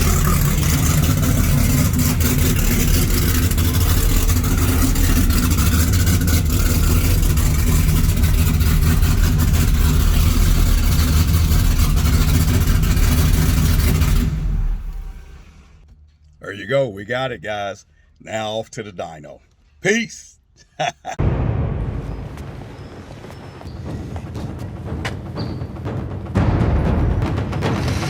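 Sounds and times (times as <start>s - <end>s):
loud car engine idling: 0.0s - 15.9s.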